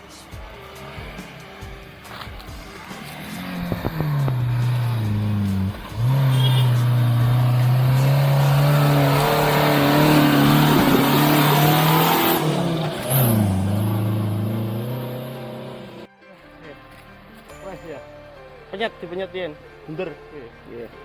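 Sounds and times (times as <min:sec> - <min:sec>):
engine revving hard: 0:03.0 - 0:16.1.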